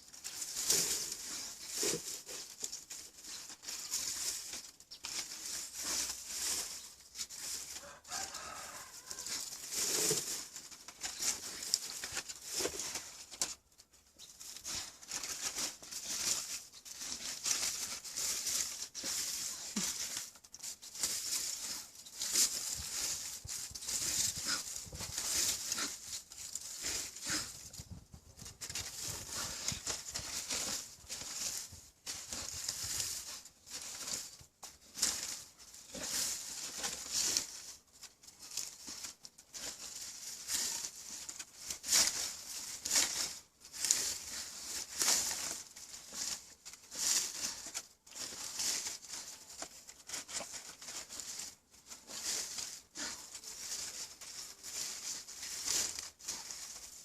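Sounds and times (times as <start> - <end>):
dog scratching and rustling: 0.1 - 13.6, 14.2 - 57.0.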